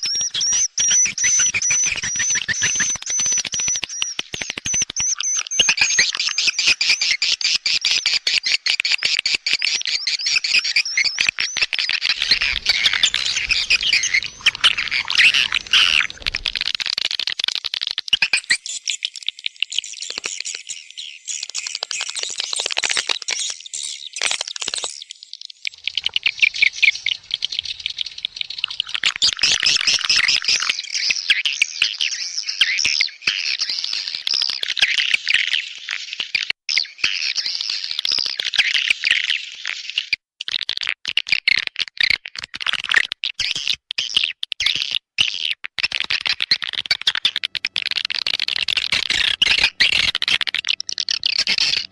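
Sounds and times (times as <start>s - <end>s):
swiftlets twittering and chattering: 11.6s - 17.6s, 25.7s - 31.0s, 45.9s - 51.9s.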